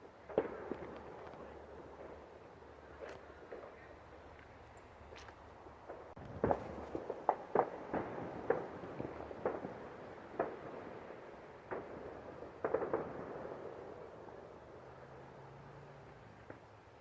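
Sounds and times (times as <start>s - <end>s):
fireworks bangs and pops: 0.0s - 2.3s, 5.8s - 14.2s.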